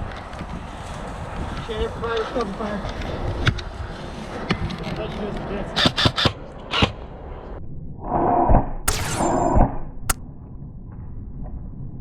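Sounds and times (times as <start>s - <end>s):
airsoft gun cracks: 8.9s - 10.2s.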